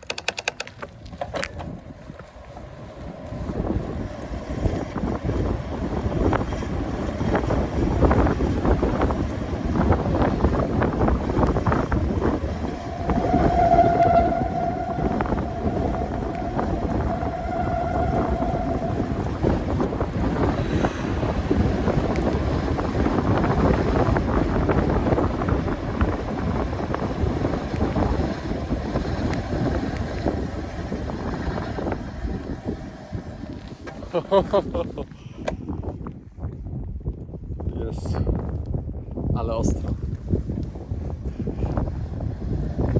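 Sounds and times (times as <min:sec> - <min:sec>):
road noise: 0:00.0 - 0:35.6
wind buffeting microphone: 0:00.0 - 0:42.9
steady whining tone: 0:03.0 - 0:34.1.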